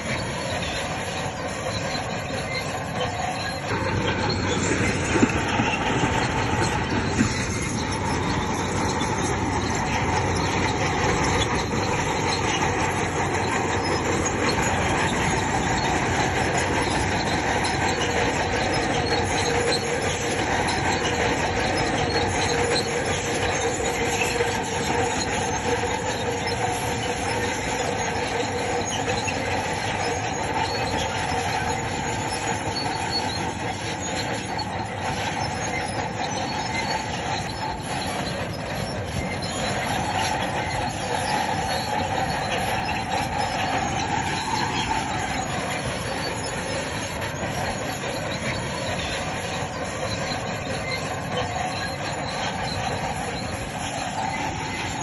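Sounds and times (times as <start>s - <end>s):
bulldozer diesel engine running: 0.0s - 55.0s
steel tracks clanking and squealing: 0.0s - 55.0s.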